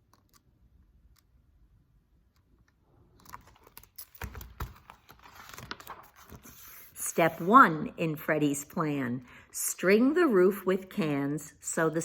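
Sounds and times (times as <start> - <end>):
small clicks: 0.0 - 0.5
paper rustling: 3.2 - 7.5.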